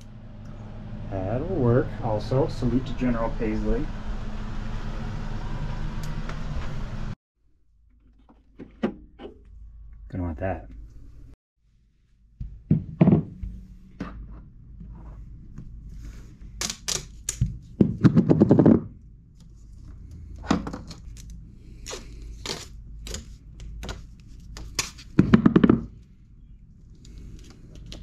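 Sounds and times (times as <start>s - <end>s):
hard objects clicking and knocking: 16.6s - 18.9s, 24.6s - 26.0s.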